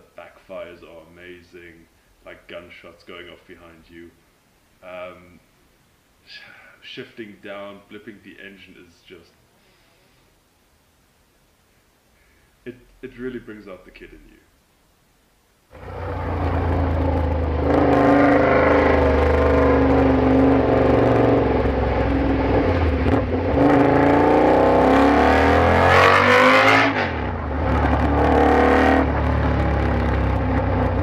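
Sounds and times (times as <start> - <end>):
motorcycle engine revving: 15.7 - 31.0.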